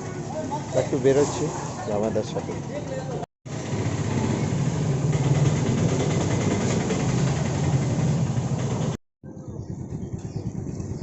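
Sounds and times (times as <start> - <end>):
outdoor ambience: 0.0 - 11.0
vehicle engine running: 2.3 - 11.0.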